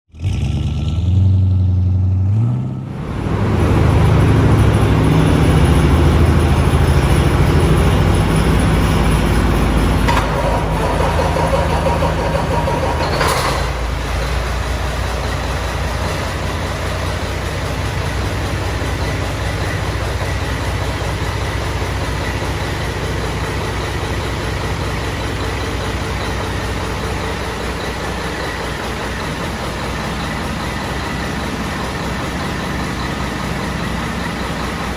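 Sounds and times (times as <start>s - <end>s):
diesel engine starting and idling: 0.1s - 34.9s.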